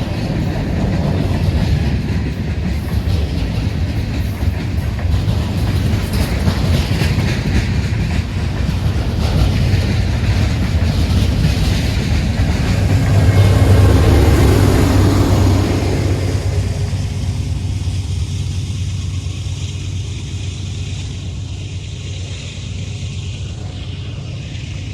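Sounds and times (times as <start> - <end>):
train rumble: 0.0 - 24.9
train wheels clicking over rail joints: 0.0 - 24.9.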